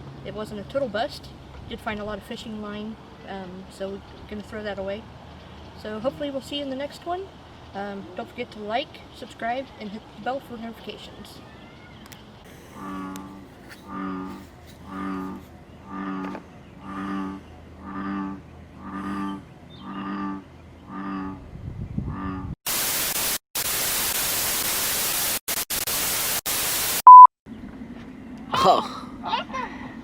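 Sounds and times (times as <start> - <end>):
bullfrog calling: 12.5 - 21.4
loud static: 22.7 - 27.3
loud beep tone: 27.0 - 27.3.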